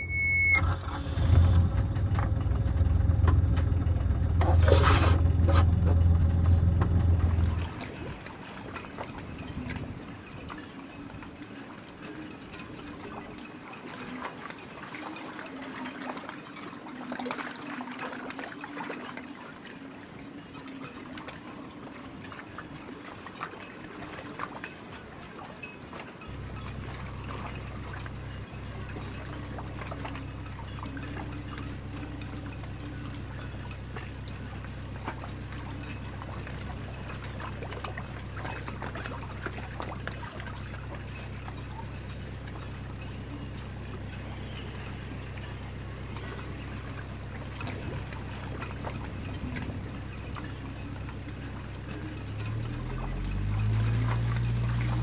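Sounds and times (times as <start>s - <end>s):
steady low hum: 0.0s - 8.1s, 26.3s - 55.0s
water splashing and trickling: 0.0s - 55.0s.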